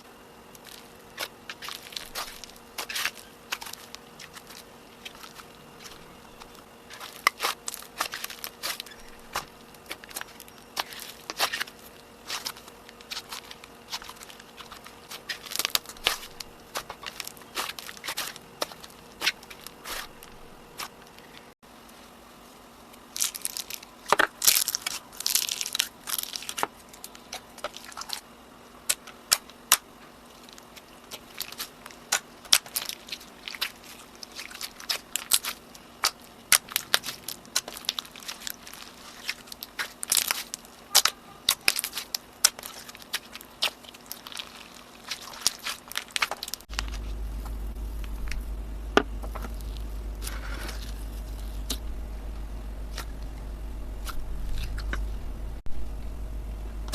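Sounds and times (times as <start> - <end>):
steady low hum: 0.0 - 56.9
slime crackling and popping: 23.1 - 28.2, 30.4 - 51.9.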